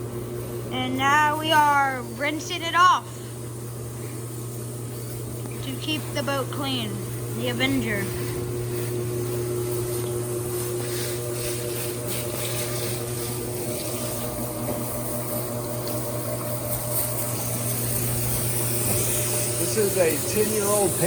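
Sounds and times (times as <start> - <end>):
steady machine hum: 0.0 - 21.0
water spraying: 7.5 - 21.0.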